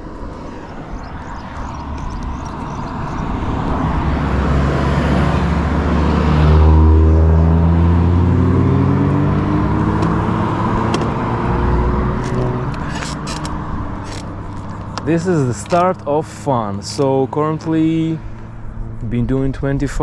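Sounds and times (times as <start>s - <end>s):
hum rising in pitch: 0.0s - 15.1s
wind rushing over microphone: 0.0s - 20.0s.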